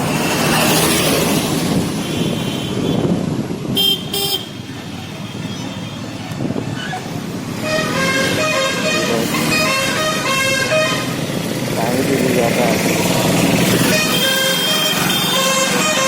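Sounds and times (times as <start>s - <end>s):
road traffic: 0.0s - 16.0s
wind and road noise: 0.0s - 16.0s
vehicle horn honking: 3.8s - 4.6s, 7.6s - 11.2s, 13.8s - 16.0s.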